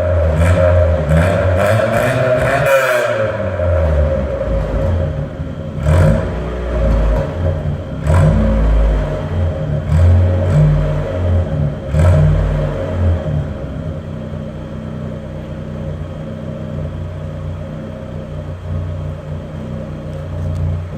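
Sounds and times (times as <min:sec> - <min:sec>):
car engine revving and idling: 0:00.0 - 0:20.9.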